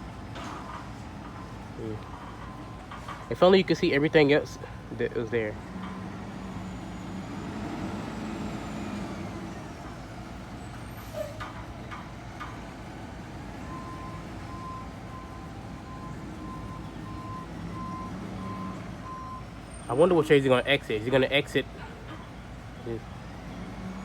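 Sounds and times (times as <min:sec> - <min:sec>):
diesel truck engine running: 0:00.0 - 0:24.0
reversing beeps: 0:13.6 - 0:19.5.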